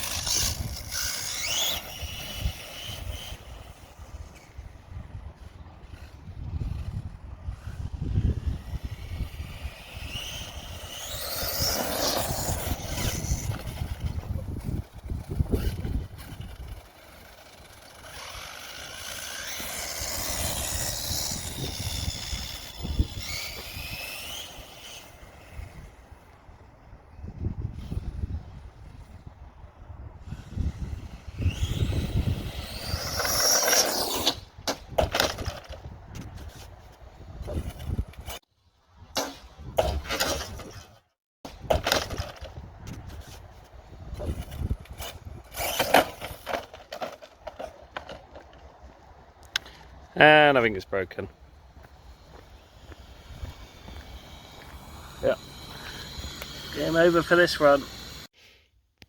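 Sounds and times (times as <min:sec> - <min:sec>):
rc car motor whining: 0:00.0 - 0:26.4, 0:27.7 - 0:29.4, 0:30.2 - 0:38.4, 0:41.6 - 0:48.5, 0:51.4 - 0:58.4
wind: 0:00.0 - 0:59.0
low rumble of tyres: 0:51.3 - 0:58.3.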